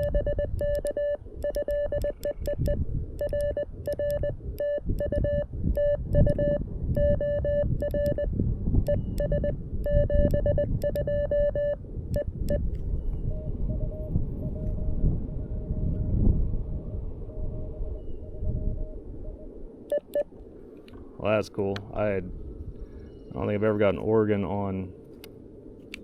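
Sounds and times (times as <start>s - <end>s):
morse code beeps: 0.0s - 16.0s, 17.3s - 20.3s
low rushing noise: 0.0s - 26.0s.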